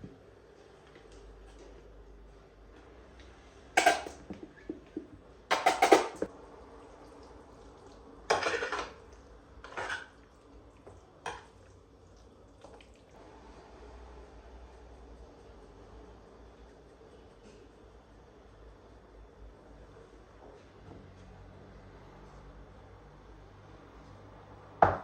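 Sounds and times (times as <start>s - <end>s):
household objects clattering: 3.8s - 6.3s.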